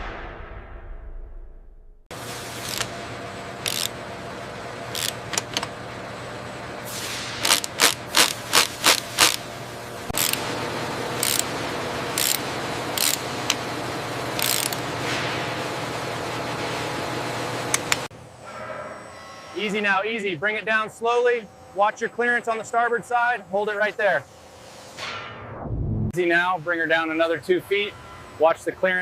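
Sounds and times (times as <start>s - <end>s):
factory machinery hum: 2.1s - 25.3s, 26.1s - 29.0s
sharp mechanical bursts: 3.6s - 4.0s, 6.9s - 9.5s, 10.1s - 13.6s, 14.3s - 15.0s.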